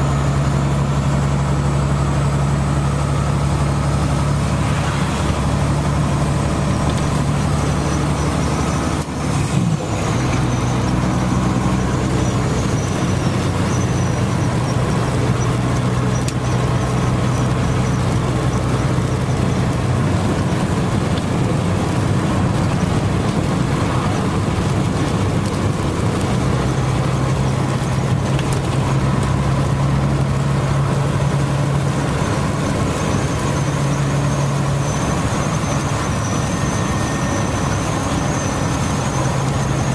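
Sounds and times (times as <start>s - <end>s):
engine idling hum: 0.0s - 39.9s
steady rain: 1.4s - 39.9s.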